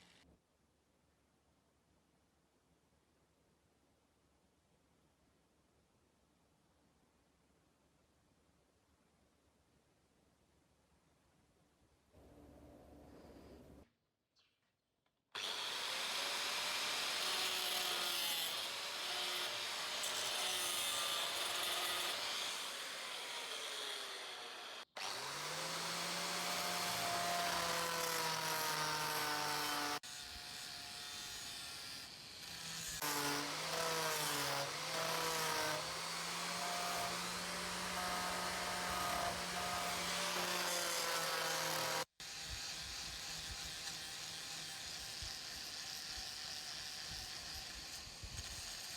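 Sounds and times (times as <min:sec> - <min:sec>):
power tool grinding: 0:15.4 - 0:48.9.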